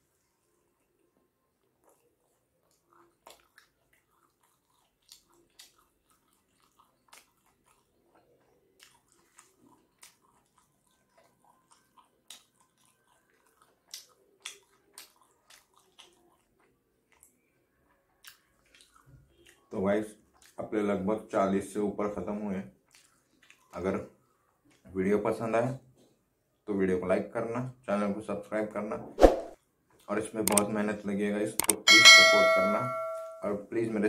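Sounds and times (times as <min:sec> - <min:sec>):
person chewing food: 0:00.7 - 0:20.6, 0:22.8 - 0:24.9, 0:29.9 - 0:30.6.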